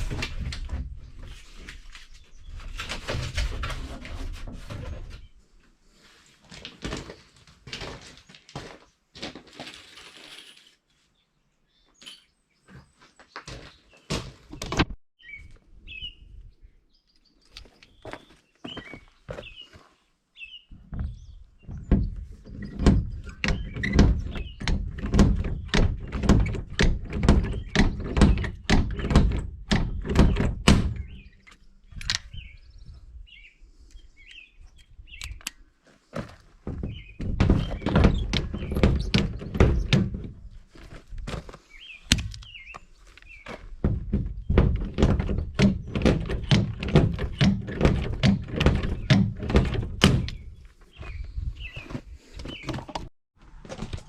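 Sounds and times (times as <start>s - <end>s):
birds chirping faintly: 10.6s - 53.1s
rapid dull thuds: 36.6s - 40.4s.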